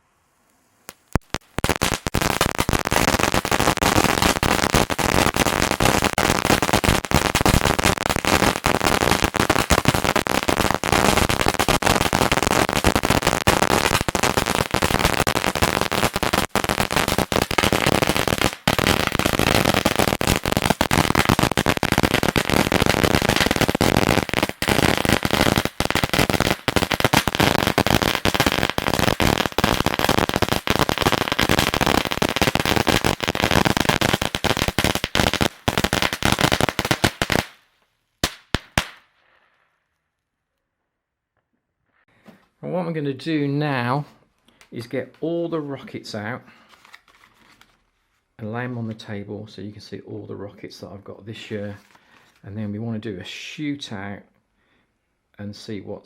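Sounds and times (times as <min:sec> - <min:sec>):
fireworks crackling and banging: 0:00.8 - 0:39.6.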